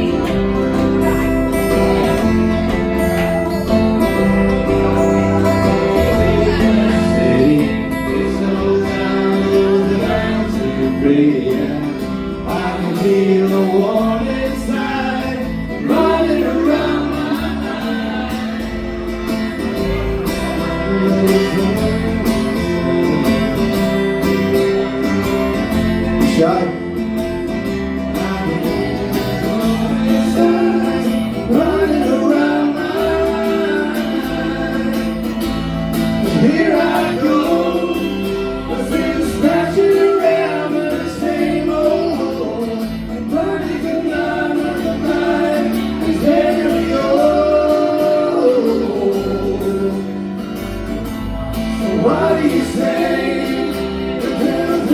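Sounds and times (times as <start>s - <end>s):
person singing: 0.0s - 23.8s, 36.2s - 50.2s
live band playing: 0.0s - 54.9s.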